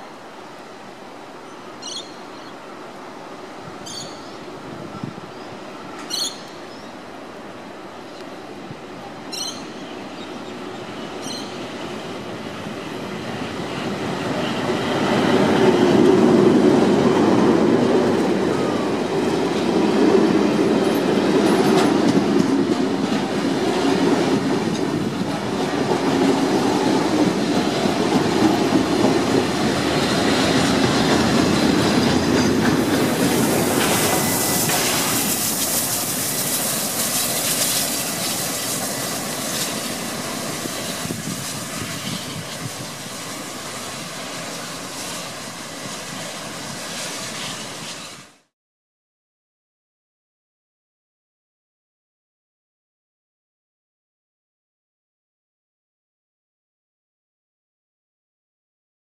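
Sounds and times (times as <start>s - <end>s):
loud steam hiss: 22.0s - 48.5s.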